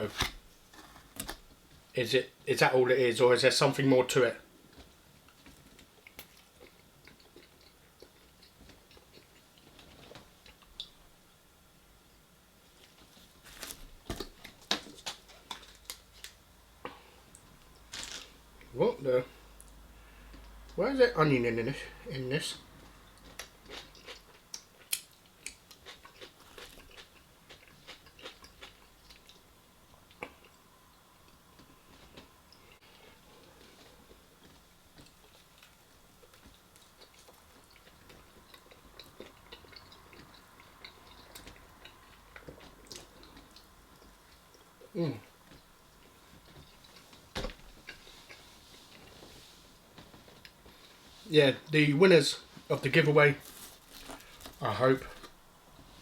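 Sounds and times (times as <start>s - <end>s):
chewing and mouth clicks: 5.2s - 11.0s, 22.8s - 30.6s, 33.7s - 49.3s.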